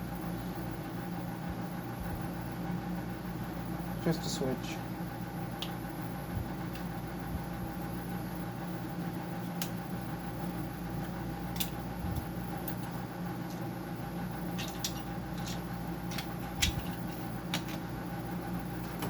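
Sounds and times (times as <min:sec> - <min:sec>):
steady machine hum: 0:00.0 - 0:19.0
clicks and taps of tools: 0:14.6 - 0:17.8.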